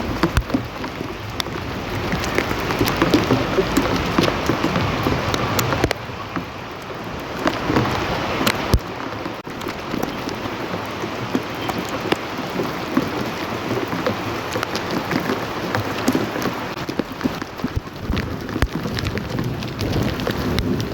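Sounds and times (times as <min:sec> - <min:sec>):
rain falling: 0:00.0 - 0:20.9
raindrops tapping: 0:00.0 - 0:20.9.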